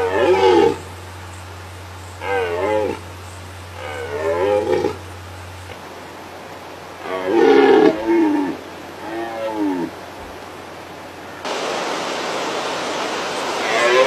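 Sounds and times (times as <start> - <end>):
deer stags roaring: 0.0 - 0.9, 2.2 - 5.8, 7.0 - 10.0
steady hiss: 0.0 - 14.0.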